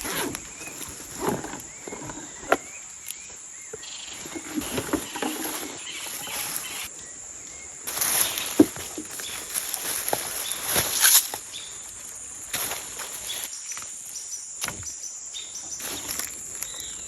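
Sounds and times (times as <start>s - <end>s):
dry leaves rustling: 0.0s - 2.7s, 3.8s - 6.9s, 7.8s - 14.1s, 15.7s - 17.0s
twigs snapping: 7.9s - 11.6s, 12.5s - 14.9s, 15.8s - 17.0s.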